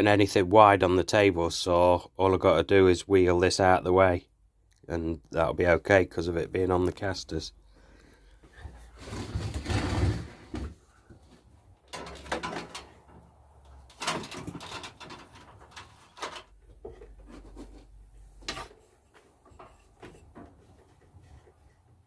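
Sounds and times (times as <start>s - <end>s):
heavy equipment scraping: 8.9s - 10.6s
knocks and bumps: 9.1s - 18.8s.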